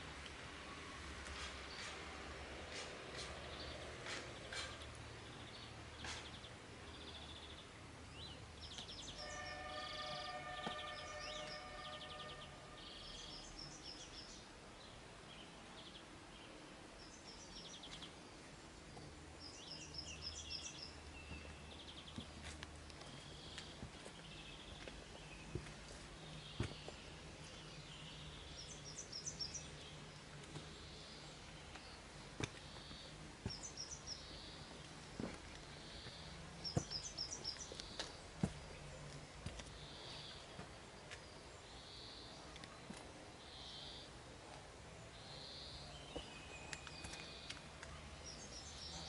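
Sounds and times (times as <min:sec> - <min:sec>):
songbird singing: 0:00.0 - 0:49.0.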